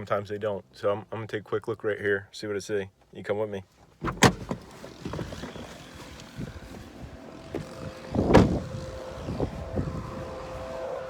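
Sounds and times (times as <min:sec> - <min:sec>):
faint engine-like hum: 0:04.0 - 0:11.0
footsteps through brush: 0:04.8 - 0:08.6
wind on microphone: 0:06.2 - 0:10.9.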